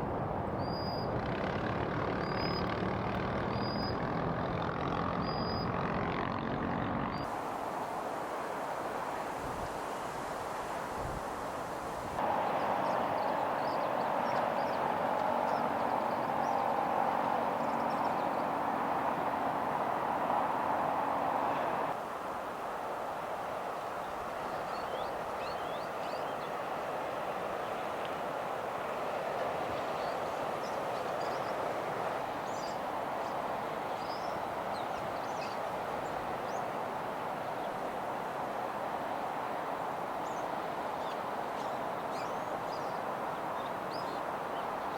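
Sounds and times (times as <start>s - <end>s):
distant traffic rumble: 0.0s - 44.9s.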